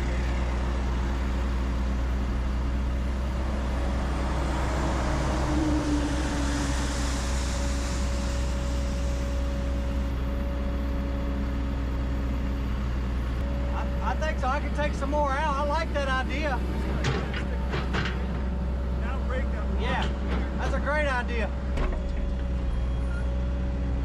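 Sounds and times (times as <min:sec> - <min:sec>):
excavator diesel engine running: 0:00.0 - 0:24.0
hiss: 0:03.8 - 0:10.0.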